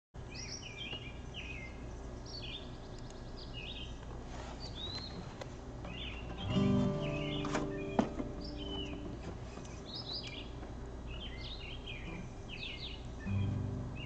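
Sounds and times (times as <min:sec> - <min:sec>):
low background rumble: 0:00.2 - 0:14.0
songbird whistling: 0:05.9 - 0:10.5, 0:11.1 - 0:14.0.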